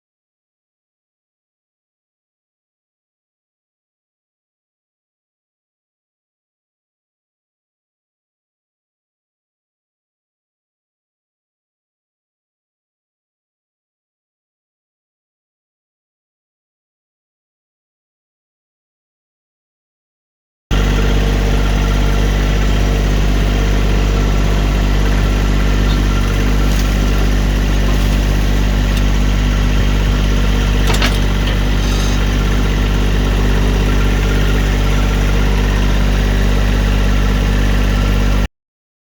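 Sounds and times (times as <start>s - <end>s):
tractor diesel engine idling: 20.7s - 38.5s.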